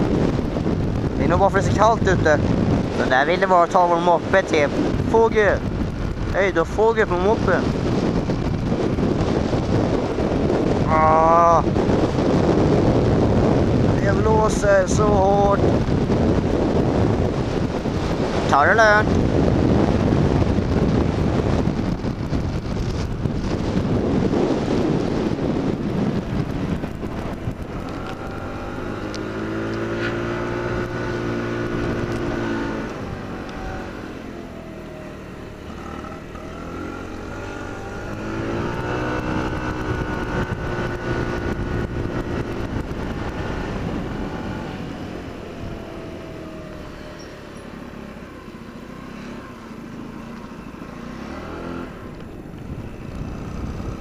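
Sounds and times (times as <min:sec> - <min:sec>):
wind buffeting the microphone: 0:00.0 - 0:54.0
moped engine revving: 0:15.2 - 0:54.0.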